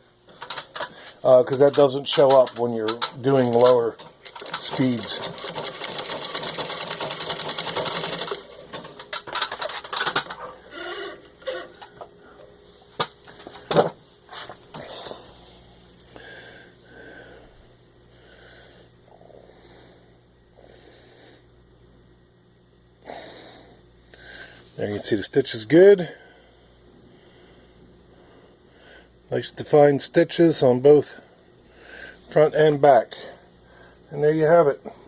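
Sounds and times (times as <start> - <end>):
treadle sewing machine stitching: 1.6 - 11.6.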